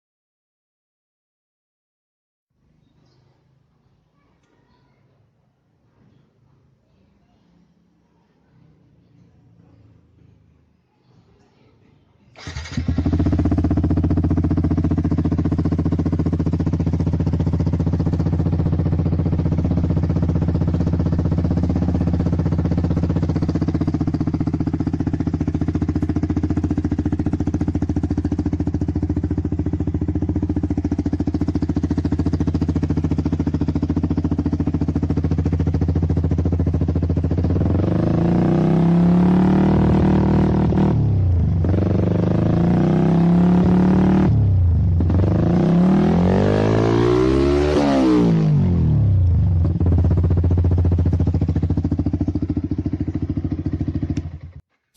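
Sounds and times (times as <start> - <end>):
motorcycle engine idling and revving: 12.3 - 54.9.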